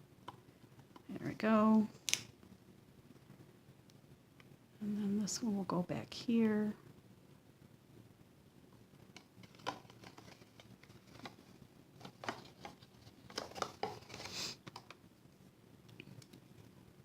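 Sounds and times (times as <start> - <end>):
paper rustle: 9.4 - 14.9.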